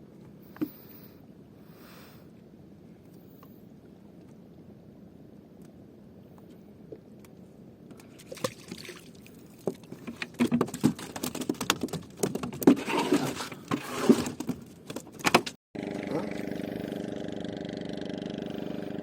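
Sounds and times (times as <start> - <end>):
knocks taps and rattles on boat: 9.4 - 15.6.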